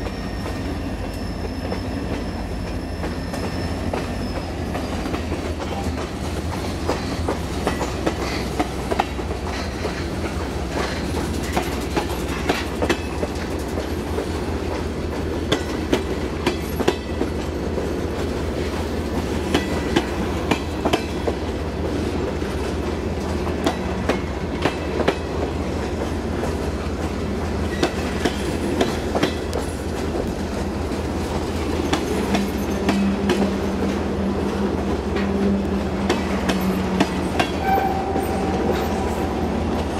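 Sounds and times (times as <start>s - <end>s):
train low rumble: 0.0s - 39.9s
wheels clicking over rail joints: 0.5s - 39.9s.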